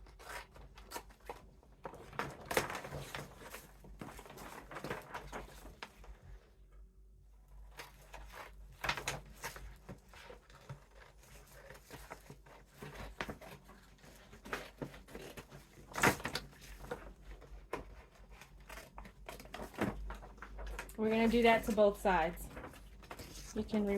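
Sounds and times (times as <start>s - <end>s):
paper bag rustling and crinkling: 0.0s - 6.4s, 7.6s - 23.9s.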